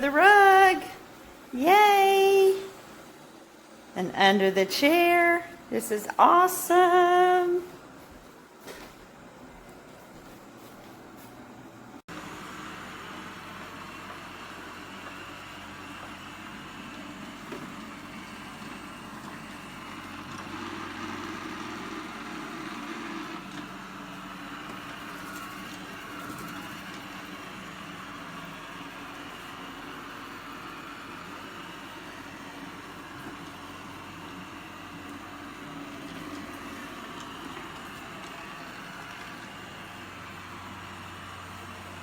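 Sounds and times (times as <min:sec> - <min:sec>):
robot vacuum whirring: 0:12.2 - 0:42.0.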